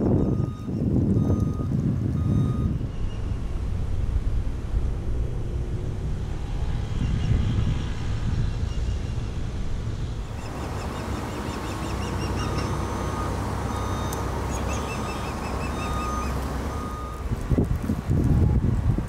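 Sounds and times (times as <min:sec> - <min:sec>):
engines rumbling: 0:00.0 - 0:19.0
wind: 0:00.0 - 0:19.0
high chirping trills: 0:10.3 - 0:17.2.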